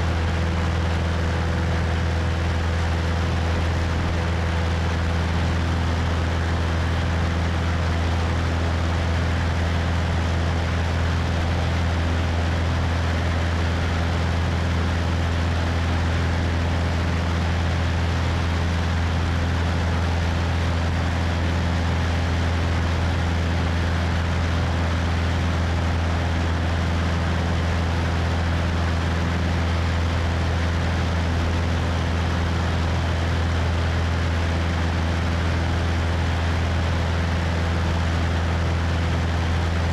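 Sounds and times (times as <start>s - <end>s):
propeller engine droning: 0.0s - 39.9s.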